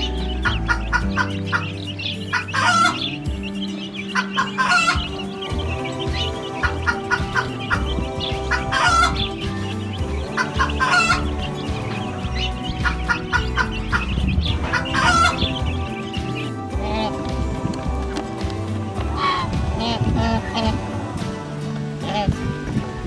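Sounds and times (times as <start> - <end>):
chickens clucking: 0.0 - 23.0
rooster crowing: 4.2 - 12.1.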